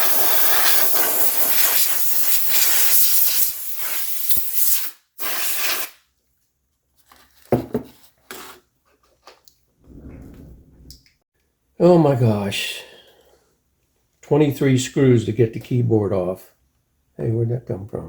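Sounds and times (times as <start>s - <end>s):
compressed air hissing: 0.0s - 5.9s.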